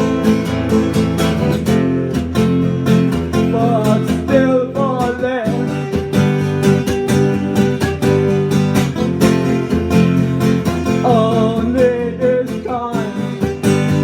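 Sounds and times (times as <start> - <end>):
acoustic guitar strumming: 0.0 - 14.0
person singing: 3.3 - 6.2, 11.0 - 14.0.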